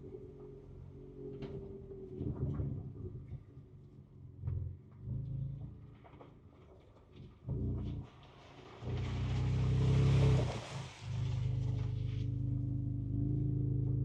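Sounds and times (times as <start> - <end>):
car engine revving: 7.5 - 14.0.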